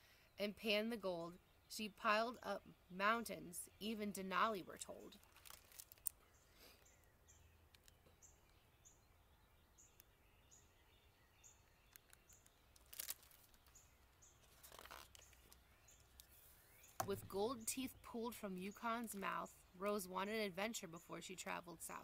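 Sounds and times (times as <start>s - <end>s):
small bird chirping: 4.9s - 19.8s
book pages rustling: 5.2s - 6.1s, 12.0s - 13.8s, 14.4s - 15.6s.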